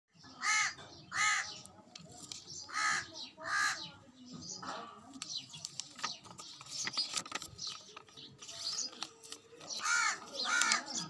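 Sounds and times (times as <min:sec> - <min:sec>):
bird calling: 0:06.0 - 0:11.0.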